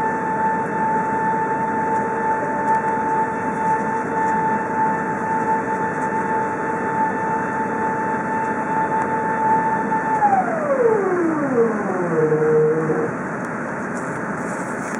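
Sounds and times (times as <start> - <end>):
jet engines whining: 9.6 - 13.7.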